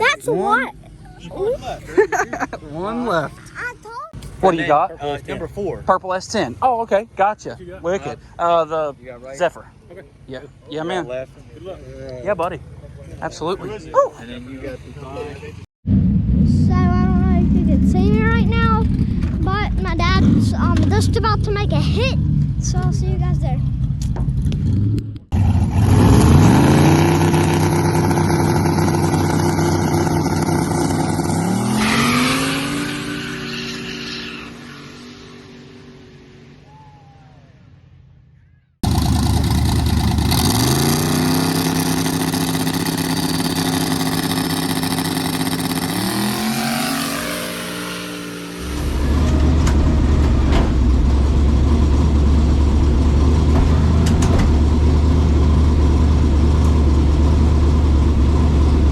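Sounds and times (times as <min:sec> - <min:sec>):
loud low rumble: 0:15.9 - 0:31.1, 0:48.5 - 0:58.9
drag car engine launching: 0:38.8 - 0:58.9.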